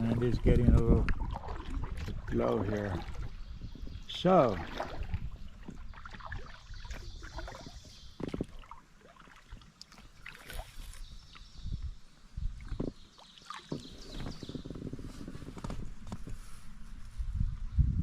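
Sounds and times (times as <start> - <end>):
water splashes: 0.0 - 11.5, 12.6 - 14.7
kayak paddle pulling through water: 0.0 - 11.6, 12.6 - 17.0.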